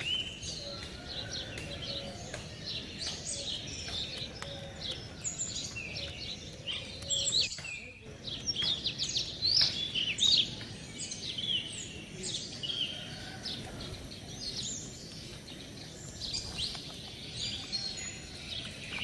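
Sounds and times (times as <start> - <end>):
birds chirping: 0.0 - 19.0
outdoor background hiss: 5.6 - 19.0.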